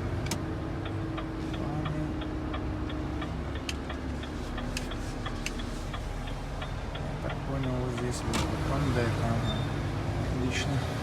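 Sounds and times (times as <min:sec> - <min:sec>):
low engine hum: 0:00.0 - 0:11.0
turn signal ticking: 0:00.0 - 0:11.0.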